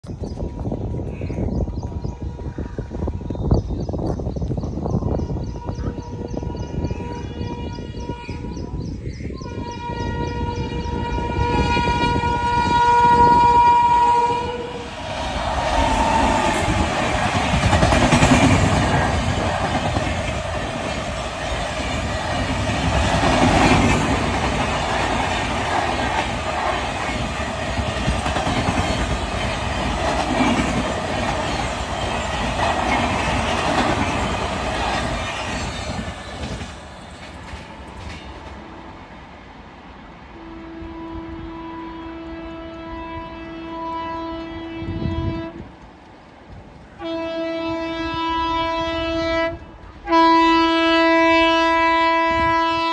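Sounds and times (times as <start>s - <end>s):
train coaches rumbling past: 0.2s - 52.9s
locomotive horn blast: 9.4s - 16.6s, 40.4s - 45.6s, 47.0s - 52.9s.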